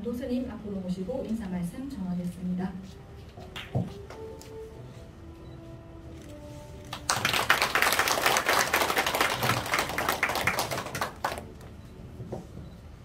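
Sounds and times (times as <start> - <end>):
audience applauding: 6.9 - 11.7.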